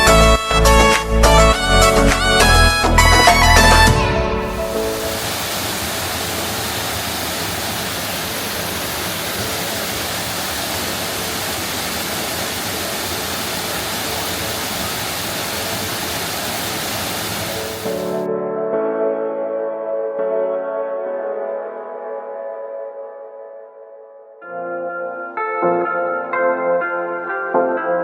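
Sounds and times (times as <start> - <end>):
music: 0.0 - 5.3, 17.8 - 28.0
running water rushing: 4.5 - 18.2.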